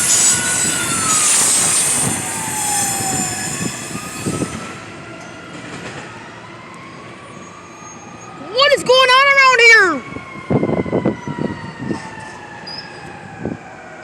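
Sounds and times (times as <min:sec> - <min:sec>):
high wheel squeals: 0:00.0 - 0:04.9
passing train rail noise: 0:00.0 - 0:08.4
distant siren wailing: 0:00.0 - 0:14.0.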